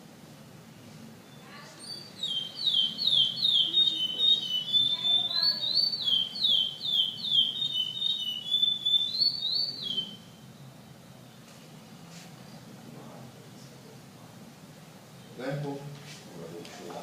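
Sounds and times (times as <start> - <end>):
finch singing whistled notes: 1.2 - 11.1.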